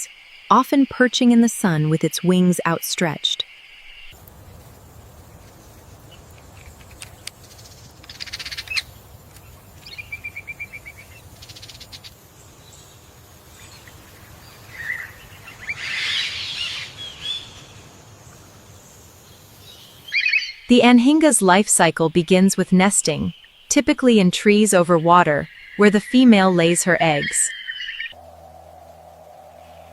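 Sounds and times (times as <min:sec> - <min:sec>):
wild birds calling: 0:05.5 - 0:18.0, 0:19.4 - 0:20.7, 0:24.6 - 0:29.9
low background hum: 0:28.2 - 0:29.9.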